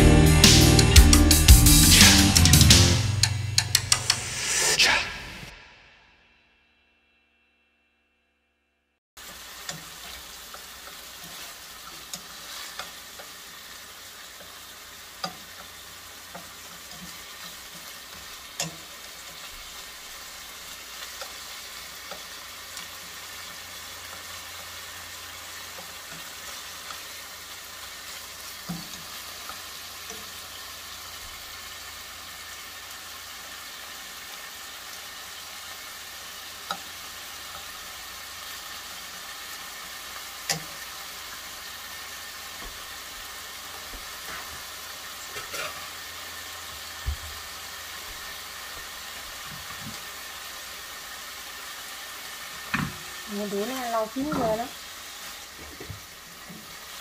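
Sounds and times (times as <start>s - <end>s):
stir-fry sizzling in a hot pan: 9.2s - 57.0s
utensil clicking against pan: 15.2s - 15.7s, 18.5s - 18.9s, 36.6s - 36.9s, 40.4s - 40.8s.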